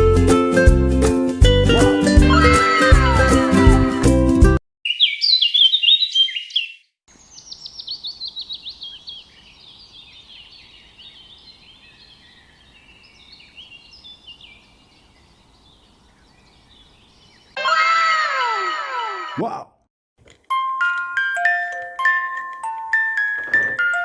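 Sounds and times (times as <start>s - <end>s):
birds chirping: 4.8s - 19.4s.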